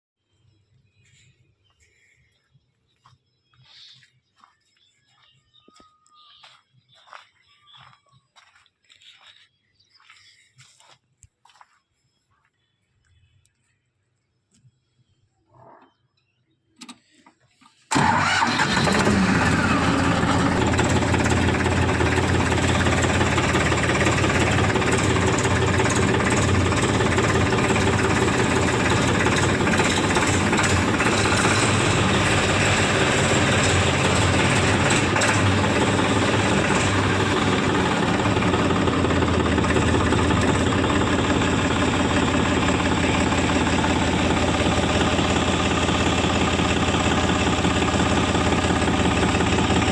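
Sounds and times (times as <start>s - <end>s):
diesel tractor engine running: 17.9s - 49.9s.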